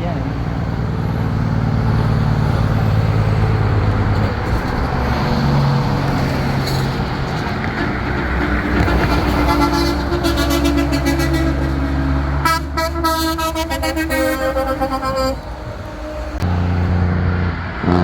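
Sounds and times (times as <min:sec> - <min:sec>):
trucks rolling past: 0:00.0 - 0:18.0
truck air horn blowing: 0:08.3 - 0:16.5.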